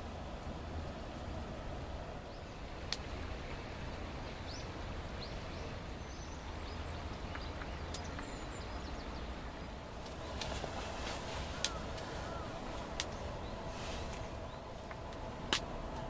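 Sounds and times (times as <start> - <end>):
low background rumble: 0.0 - 16.0
faint bird chirps: 4.4 - 10.4, 11.2 - 14.7.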